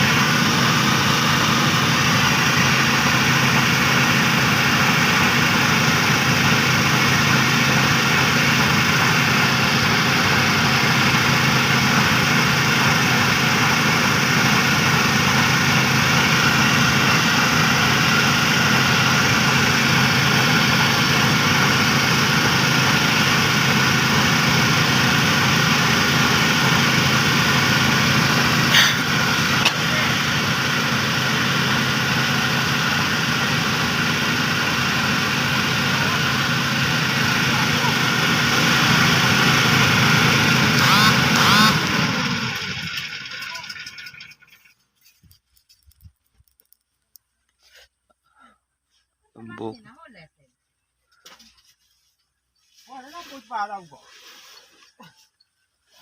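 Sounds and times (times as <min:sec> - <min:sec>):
threshing machine engine running: 0:00.0 - 0:44.8.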